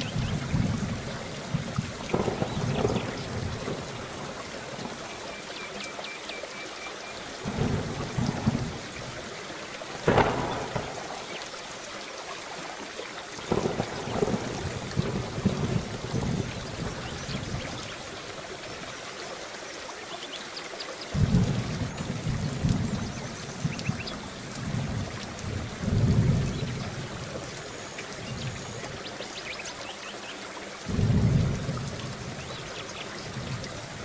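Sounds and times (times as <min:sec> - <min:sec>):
sharp thunderclap: 0:00.0 - 0:04.1, 0:07.4 - 0:08.8, 0:09.9 - 0:11.4, 0:13.5 - 0:17.7, 0:21.2 - 0:24.0, 0:30.9 - 0:32.5
thunder rumbling: 0:00.0 - 0:05.0, 0:07.4 - 0:09.2, 0:09.8 - 0:11.6, 0:13.5 - 0:18.2, 0:21.1 - 0:27.6, 0:30.9 - 0:34.0
heavy rain: 0:00.0 - 0:34.0.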